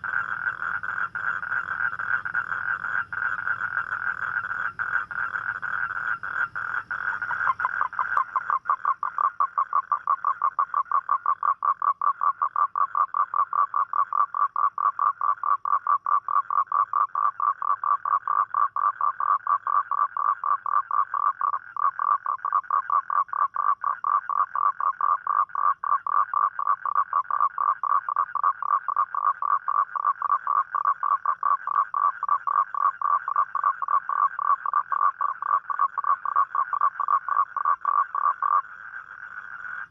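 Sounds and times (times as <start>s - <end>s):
higher-pitched toad trill: 0.0s - 21.1s
toad trilling: 0.0s - 39.9s.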